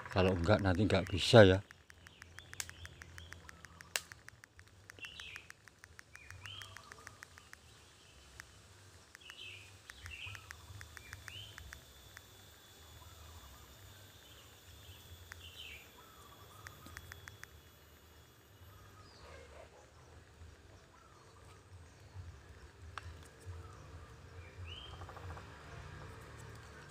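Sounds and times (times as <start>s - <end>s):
fast faint clicks: 0.0s - 12.4s, 15.1s - 17.8s, 24.9s - 26.9s
small birds chirping: 0.0s - 26.9s.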